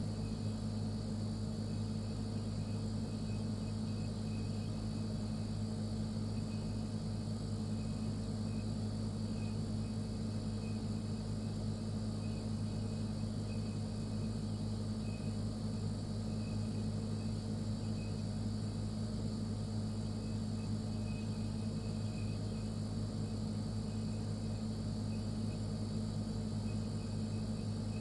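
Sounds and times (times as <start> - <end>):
refrigerator compressor hum: 0.0 - 28.0.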